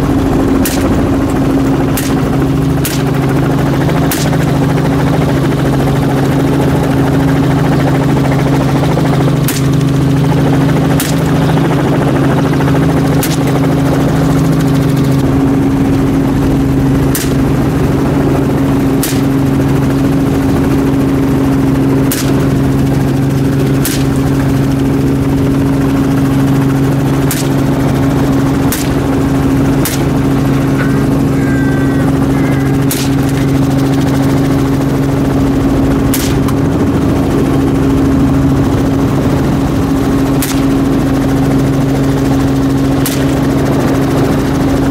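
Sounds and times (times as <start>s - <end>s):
helicopter rotor drone: 0.0s - 44.9s
sharp gunshots: 0.6s - 3.2s, 29.8s - 31.3s.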